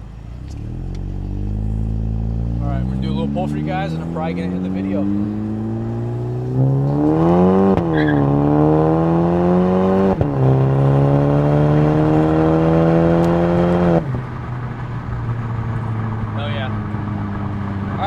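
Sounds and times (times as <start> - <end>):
car engine accelerating with upshifts: 0.0 - 18.0.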